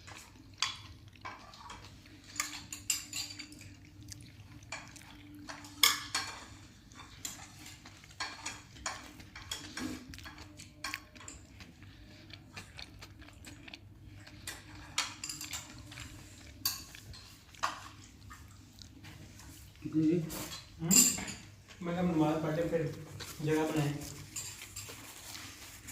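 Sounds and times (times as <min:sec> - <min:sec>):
metal utensils clinking on cookware: 0:00.6 - 0:03.8, 0:04.8 - 0:11.5, 0:14.5 - 0:18.0, 0:20.4 - 0:21.5, 0:23.4 - 0:25.2.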